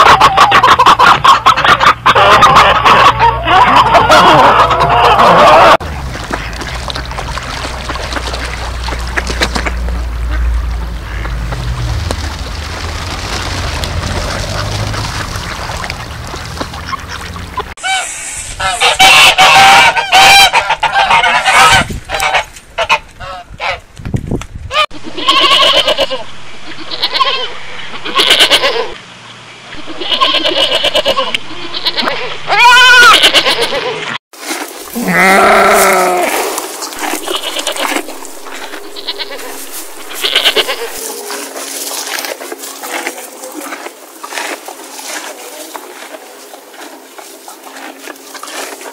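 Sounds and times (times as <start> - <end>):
wind: 0.0 - 48.9
rippling water: 5.8 - 17.8, 34.4 - 48.9
goat kids bleating: 25.0 - 29.0, 29.8 - 34.0, 35.0 - 36.4, 37.0 - 41.8.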